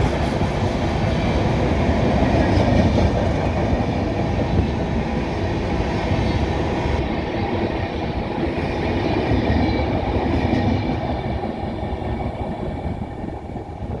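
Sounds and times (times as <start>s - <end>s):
train wheels clattering on rails: 0.0s - 14.0s.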